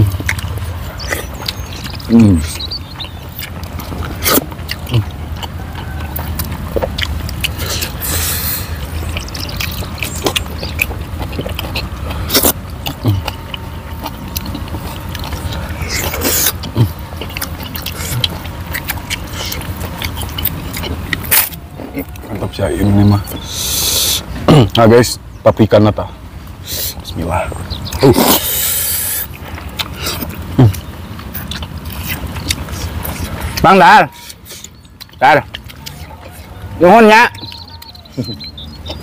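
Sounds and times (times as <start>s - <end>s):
chewing and lip-smacking: 0.0s - 24.8s, 26.5s - 39.0s
low hum: 0.0s - 25.4s.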